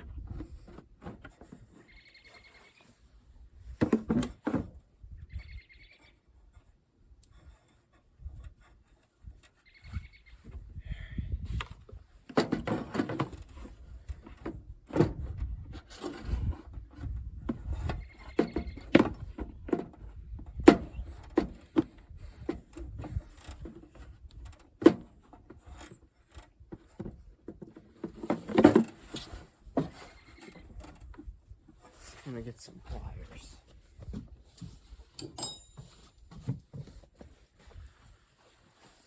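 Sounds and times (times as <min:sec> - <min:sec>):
short squeaks: 0:29.9 - 0:30.8
hand tools clanking on metal: 0:35.2 - 0:36.1.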